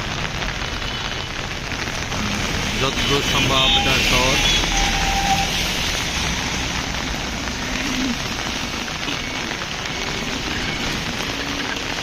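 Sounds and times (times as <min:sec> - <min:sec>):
heavy rain on a street: 0:00.0 - 0:12.0.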